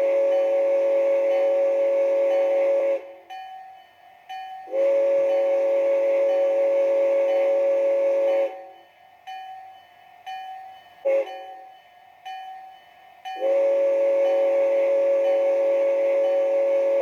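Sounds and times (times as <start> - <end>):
steam locomotive whistle blasts: 0.0 - 3.4, 4.5 - 9.0, 11.0 - 11.9, 13.2 - 17.0
locomotive bell ringing: 2.3 - 6.7, 8.3 - 16.7.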